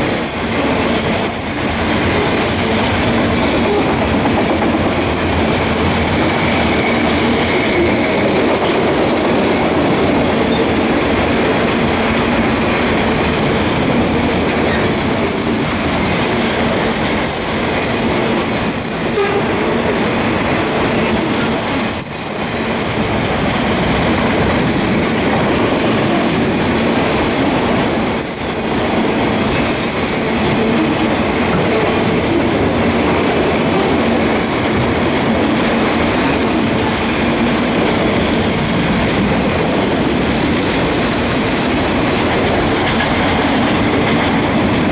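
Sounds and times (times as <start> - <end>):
freight cars rolling on rails: 0.0 - 44.9
wheels clacking over rail joints: 0.0 - 44.9
high-pitched wheel squeal: 21.4 - 22.8.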